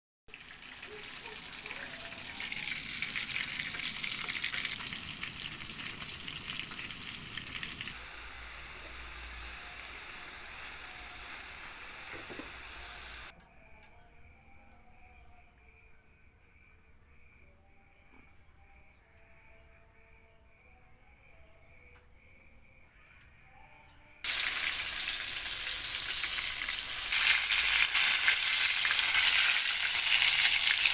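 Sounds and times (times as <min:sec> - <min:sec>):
food deep-frying in hot oil: 0:00.3 - 0:13.3, 0:24.2 - 0:30.9
faint steady high tone: 0:07.9 - 0:24.2.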